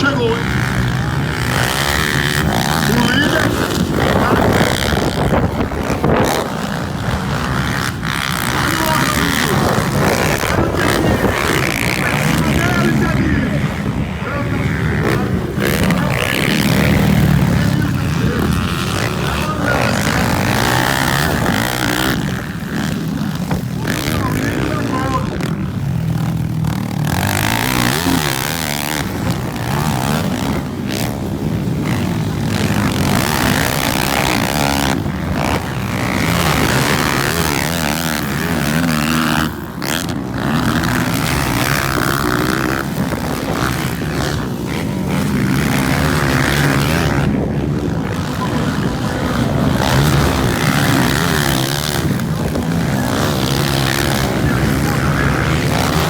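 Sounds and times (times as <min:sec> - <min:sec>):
motorcycle engines revving: 0:00.0 - 0:56.0.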